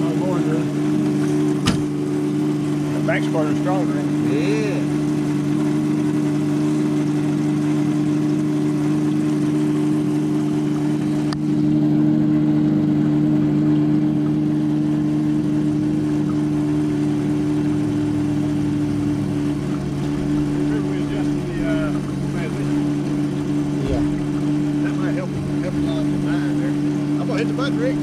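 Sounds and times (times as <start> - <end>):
electric pump hum: 0.0 - 28.0.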